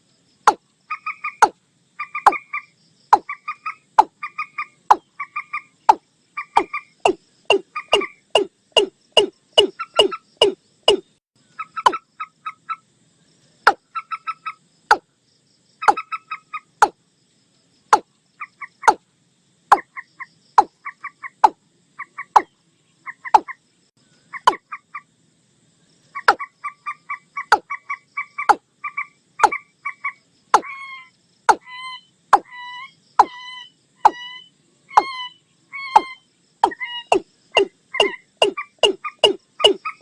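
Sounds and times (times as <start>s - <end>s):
higher clucking bird notes: 0.5s - 12.8s, 15.8s - 17.0s, 26.2s - 40.0s.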